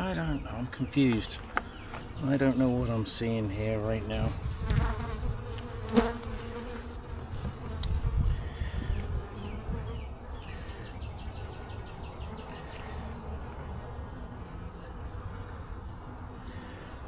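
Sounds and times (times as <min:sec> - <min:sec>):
bees buzzing: 0:04.0 - 0:14.4.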